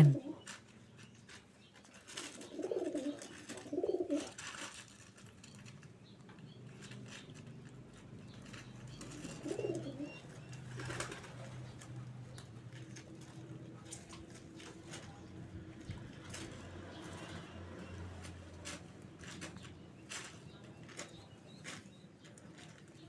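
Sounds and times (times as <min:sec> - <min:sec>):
pigeons cooing: 0:00.0 - 0:00.5, 0:02.2 - 0:04.4, 0:09.0 - 0:11.9
beaks pecking at rice: 0:00.0 - 0:23.0.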